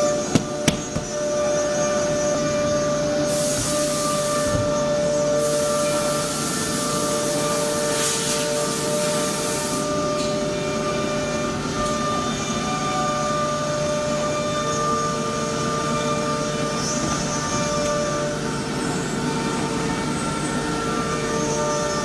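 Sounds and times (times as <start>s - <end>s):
woodworking machinery whining hum: 0.0s - 22.0s
hiss: 3.2s - 4.8s, 5.4s - 10.0s.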